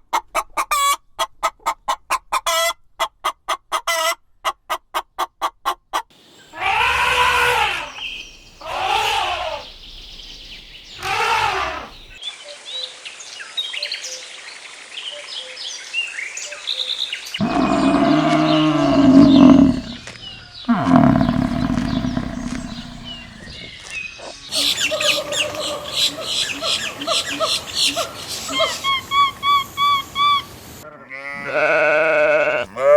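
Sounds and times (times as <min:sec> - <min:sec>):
long low animal calls: 0:08.6 - 0:09.7, 0:17.4 - 0:20.0, 0:20.7 - 0:23.6
rising and falling animal calls: 0:17.4 - 0:20.0, 0:20.7 - 0:23.6
small bird chirps: 0:20.7 - 0:26.7.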